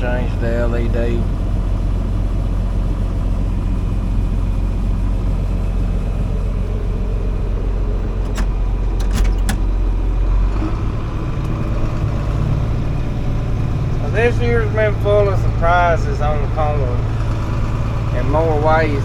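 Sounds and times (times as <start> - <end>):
truck engine running: 0.0 - 19.0
sharp clicks or rattles: 8.2 - 9.8.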